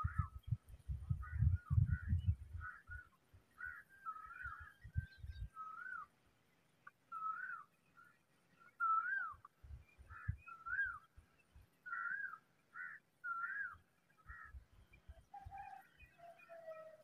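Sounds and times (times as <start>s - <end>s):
bird whistling: 8.8s - 9.5s.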